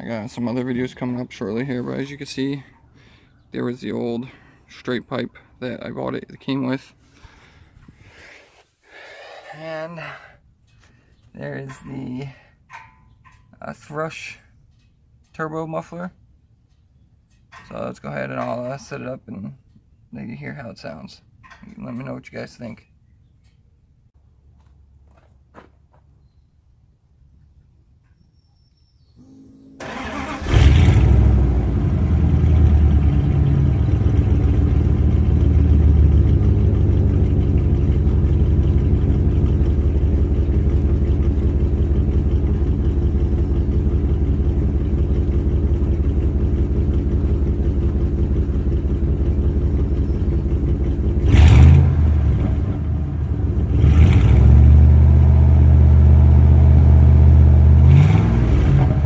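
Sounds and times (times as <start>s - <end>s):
engine revving: 29.2s - 44.2s, 50.6s - 59.0s
engine starting and idling: 29.2s - 52.8s.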